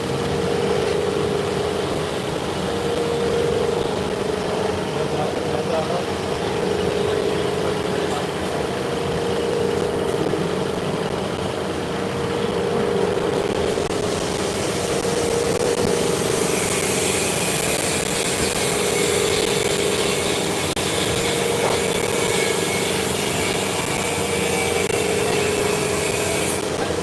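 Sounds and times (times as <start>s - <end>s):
power tool grinding metal: 12.0s - 27.0s.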